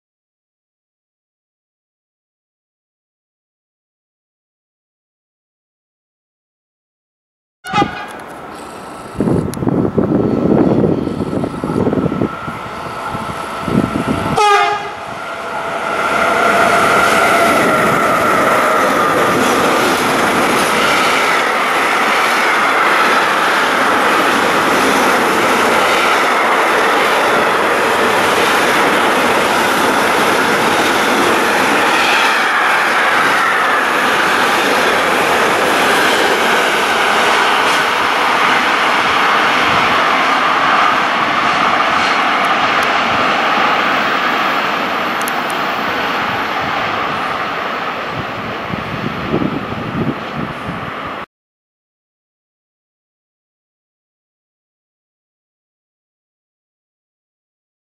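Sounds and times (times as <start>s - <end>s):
train horn blast: 7.6s - 8.2s, 11.0s - 15.6s.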